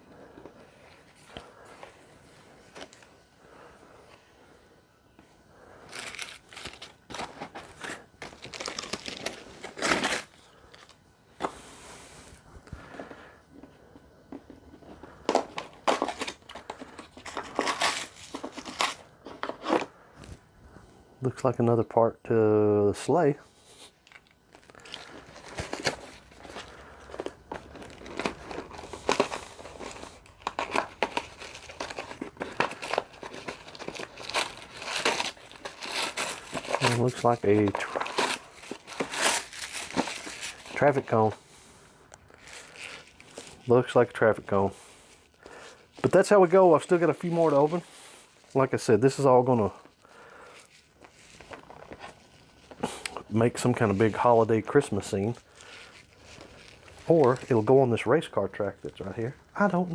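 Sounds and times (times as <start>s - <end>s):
cardboard packaging crinkling and tearing: 5.8s - 11.6s, 14.8s - 19.9s, 23.7s - 41.4s, 42.3s - 59.9s.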